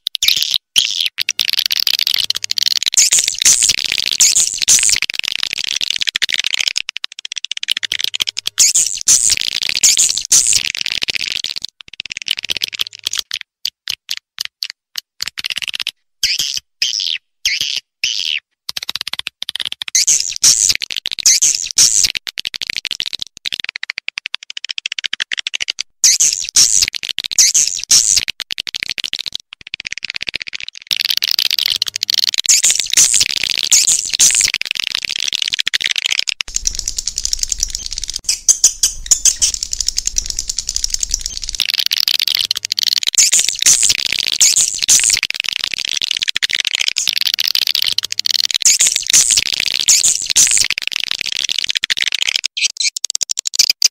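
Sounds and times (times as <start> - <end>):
swiftlets chirping: 3.0 - 5.0, 8.6 - 10.6, 26.0 - 28.2, 31.6 - 50.7.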